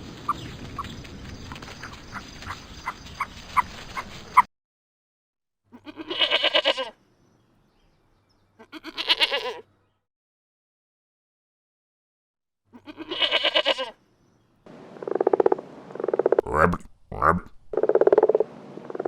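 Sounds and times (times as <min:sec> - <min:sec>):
sheep bleating: 0:05.7 - 0:07.0, 0:08.6 - 0:09.7, 0:12.8 - 0:14.0
background hiss: 0:14.0 - 0:16.4.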